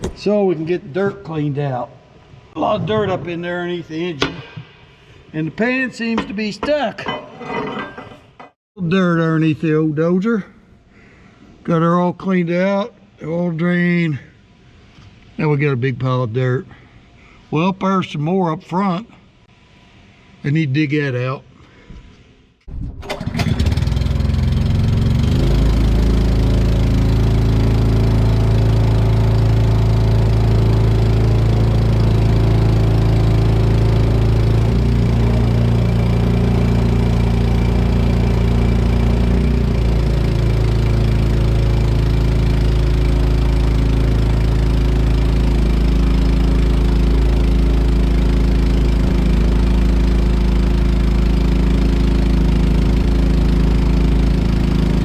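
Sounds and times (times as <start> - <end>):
engine running: 23.0 - 55.0.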